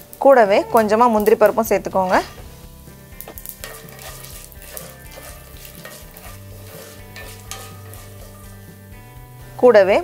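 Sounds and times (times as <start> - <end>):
oil sizzling and crackling: 0.0 - 10.0
wooden spatula stirring: 3.4 - 9.0.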